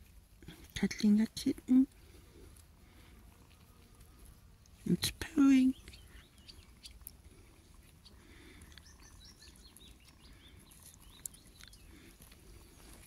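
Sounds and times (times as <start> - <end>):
outdoor background noise: 0.0 - 13.0
faint bird chirps: 5.5 - 13.0.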